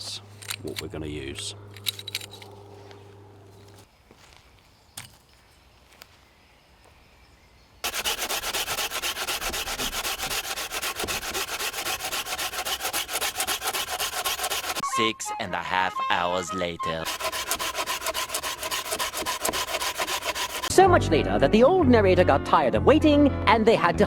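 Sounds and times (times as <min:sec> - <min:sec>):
hand saw cutting wood: 0:07.8 - 0:14.8, 0:17.0 - 0:20.7.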